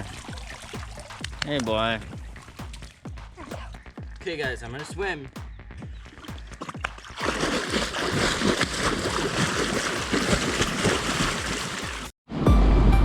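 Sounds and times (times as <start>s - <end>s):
water splashing in a pool: 0.0s - 3.2s, 6.0s - 12.1s.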